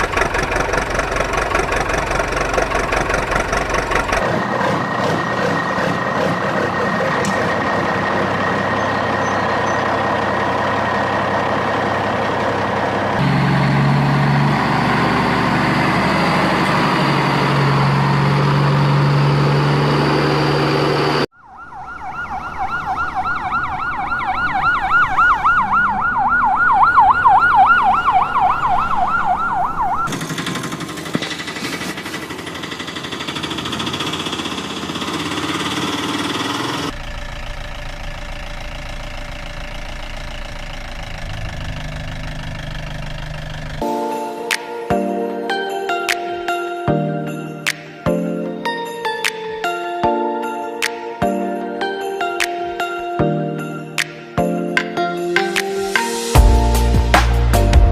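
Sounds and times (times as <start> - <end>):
engine running: 0.0 - 21.3, 22.3 - 44.2
siren warbling: 13.0 - 30.2.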